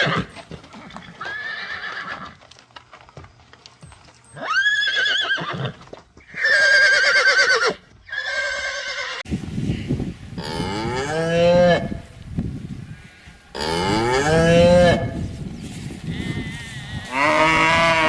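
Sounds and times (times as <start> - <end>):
farm animal calls: 0.0 - 2.5, 12.8 - 18.0.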